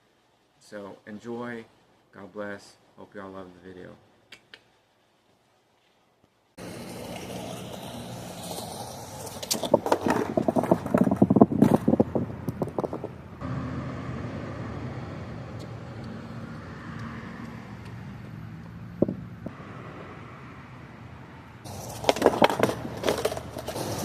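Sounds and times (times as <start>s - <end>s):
low hum of traffic: 6.4s - 24.0s
skateboard clattering over concrete: 6.6s - 13.2s, 21.7s - 24.0s.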